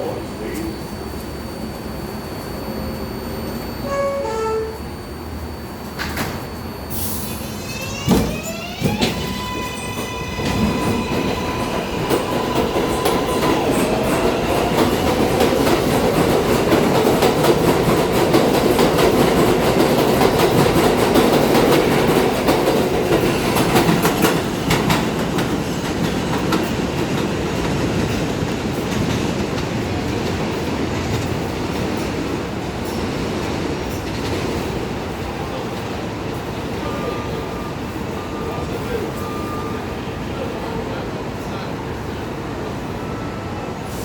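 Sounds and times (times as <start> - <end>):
train motors whining: 0.0 - 17.0.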